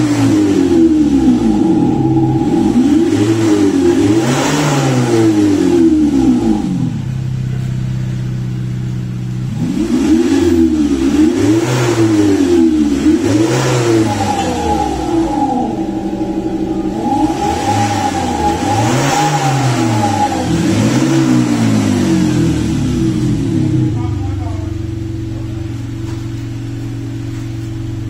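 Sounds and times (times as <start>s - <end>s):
synthetic engine note revving: 0.0s - 7.7s, 9.6s - 24.0s.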